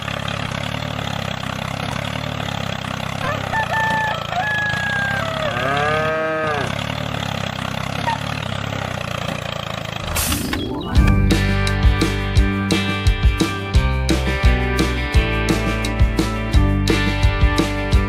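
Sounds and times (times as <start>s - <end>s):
tractor diesel engine idling: 0.0s - 18.0s
cow mooing: 5.3s - 6.8s.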